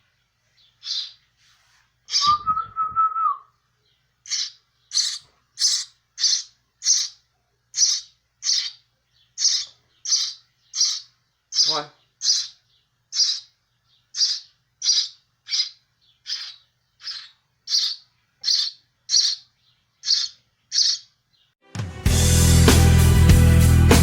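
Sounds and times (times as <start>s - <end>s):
sparrow chirping: 0.0s - 1.3s, 2.0s - 21.6s
loud music with drums: 21.7s - 24.0s.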